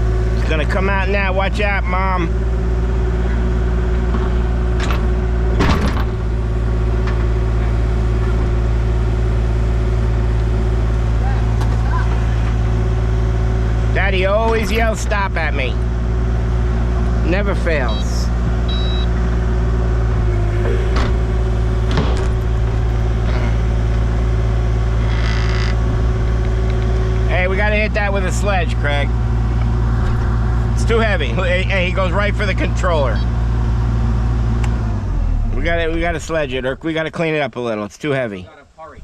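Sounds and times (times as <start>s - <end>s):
excavator engine running: 0.0s - 37.8s
metal clanks and knocks: 4.1s - 6.3s, 20.3s - 24.0s.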